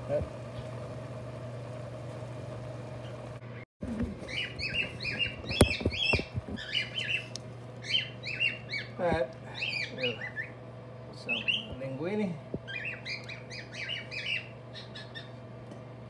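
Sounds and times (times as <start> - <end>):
steady low hum: 0.0 - 16.0
bird chirping: 4.2 - 10.6, 11.2 - 11.8, 12.6 - 15.4.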